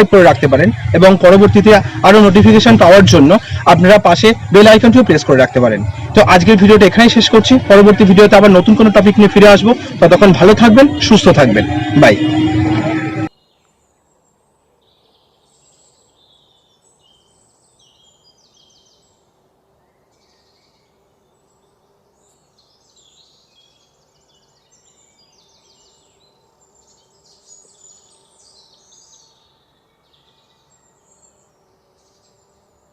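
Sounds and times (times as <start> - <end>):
small birds chirping: 13.3 - 32.9.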